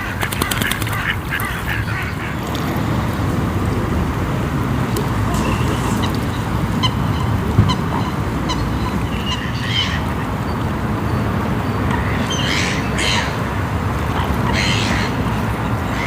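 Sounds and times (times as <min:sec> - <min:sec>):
waterfowl calling: 0:00.0 - 0:03.6, 0:05.0 - 0:10.2.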